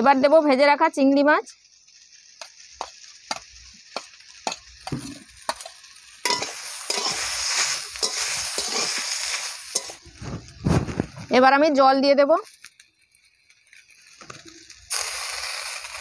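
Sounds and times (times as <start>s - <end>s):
food sizzling in oil: 0.0s - 16.0s
metal spatula stirring: 2.4s - 10.2s.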